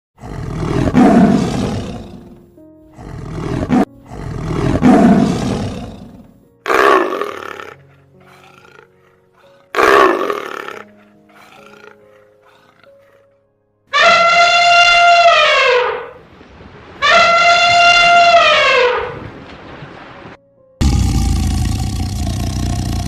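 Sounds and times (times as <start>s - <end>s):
large animal roaring: 0.2s - 13.4s, 20.8s - 23.0s
soft background music: 0.2s - 15.7s, 20.3s - 20.9s.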